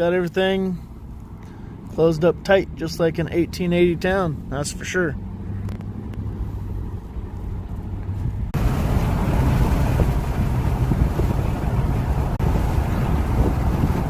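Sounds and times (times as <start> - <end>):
car engine and road rumble: 0.0 - 14.0
rush of wind noise: 5.5 - 14.0.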